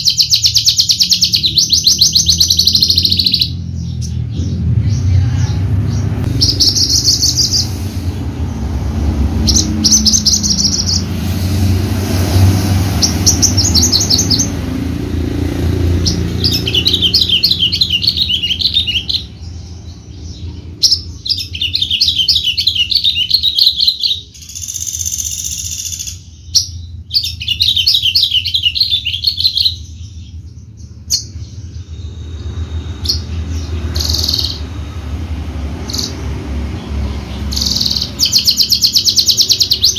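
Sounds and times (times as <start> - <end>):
bird singing fast high notes: 15.7 - 19.6.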